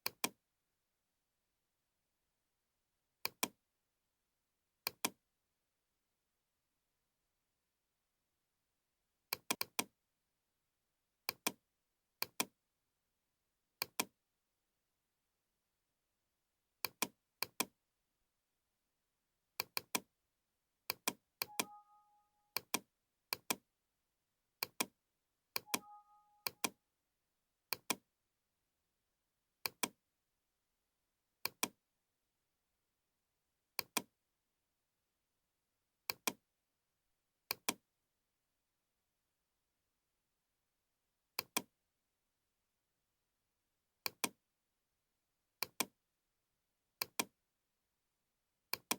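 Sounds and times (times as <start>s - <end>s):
computer mouse clicks: 0.0s - 0.4s, 3.3s - 3.6s, 4.9s - 5.2s, 9.3s - 9.9s, 11.3s - 11.6s, 12.2s - 12.5s, 13.8s - 14.1s, 16.8s - 17.7s, 19.6s - 20.1s, 20.9s - 21.9s, 24.6s - 24.9s, 25.6s - 26.8s, 27.7s - 28.0s, 29.7s - 30.0s, 31.4s - 31.8s, 33.8s - 34.1s, 36.1s - 36.4s, 37.5s - 37.8s, 41.4s - 41.7s, 44.1s - 44.4s, 45.6s - 45.9s, 47.0s - 47.3s
two-note computer alert chime: 21.5s - 22.6s, 25.7s - 26.7s.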